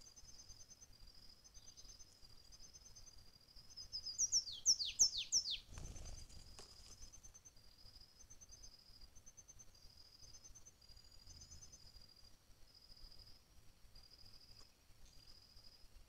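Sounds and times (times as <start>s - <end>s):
insects chirping: 0.0s - 16.0s
wings fluttering: 5.2s - 7.4s.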